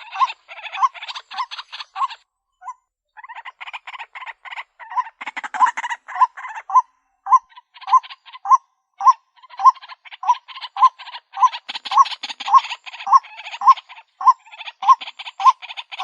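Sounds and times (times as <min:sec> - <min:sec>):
waterhen calling: 0:00.0 - 0:16.0.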